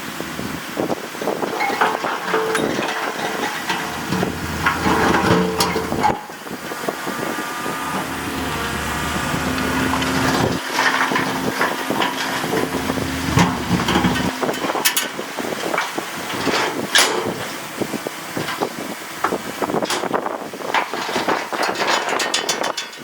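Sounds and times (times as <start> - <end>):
heavy machinery diesel engines: 0.0 - 22.9
knocks and clatter: 1.4 - 17.6.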